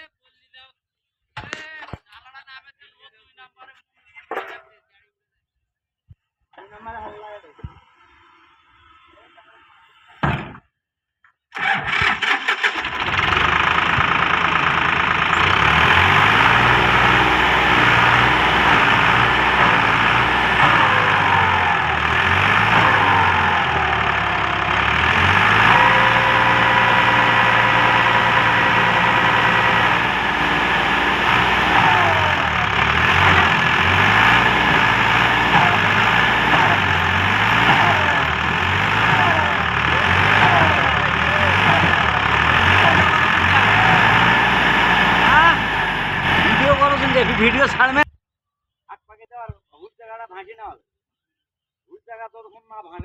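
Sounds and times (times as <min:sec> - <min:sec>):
tractor engine cranking and running: 0:11.5 - 0:48.0.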